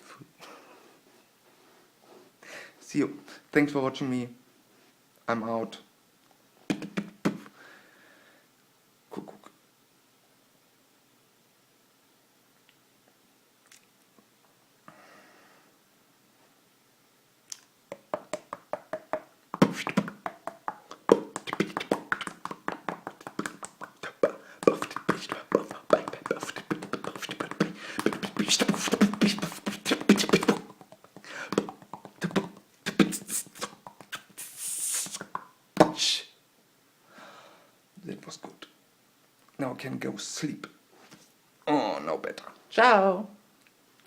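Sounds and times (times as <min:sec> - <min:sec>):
beatboxing: 0:06.7 - 0:07.5, 0:09.1 - 0:09.5, 0:17.5 - 0:36.2.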